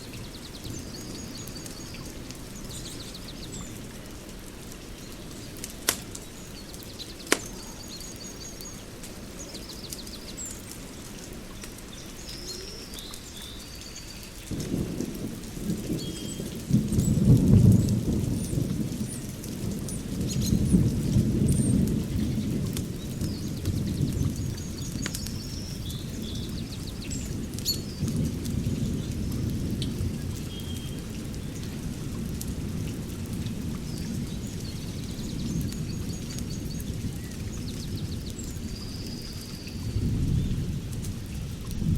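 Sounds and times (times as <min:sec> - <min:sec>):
small birds chirping: 0:00.0 - 0:14.6, 0:17.8 - 0:29.8
sharp pops: 0:07.3 - 0:07.6.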